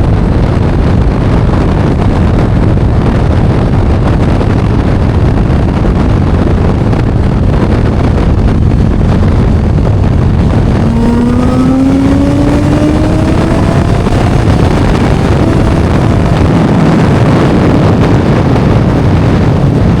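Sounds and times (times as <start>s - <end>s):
wind buffeting microphone: 0.0s - 20.0s
faint rising pitched tone: 8.9s - 16.6s.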